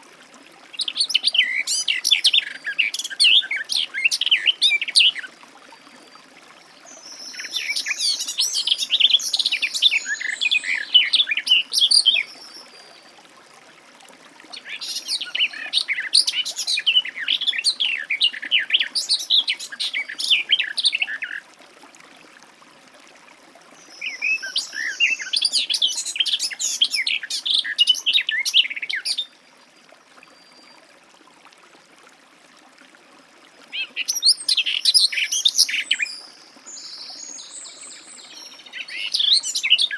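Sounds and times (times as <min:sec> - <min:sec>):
warbler singing: 0:07.0 - 0:12.6, 0:23.9 - 0:29.3, 0:33.7 - 0:39.9.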